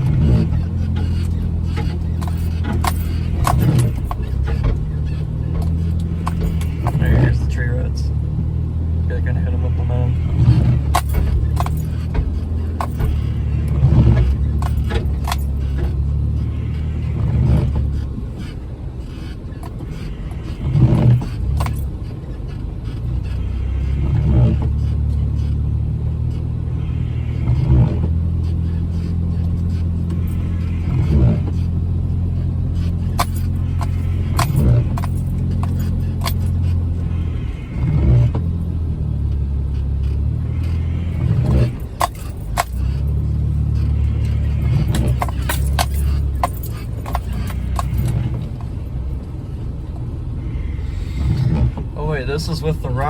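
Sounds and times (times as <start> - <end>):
body and suspension rattling: 0.0 - 53.0
vehicle engine running: 0.0 - 53.0.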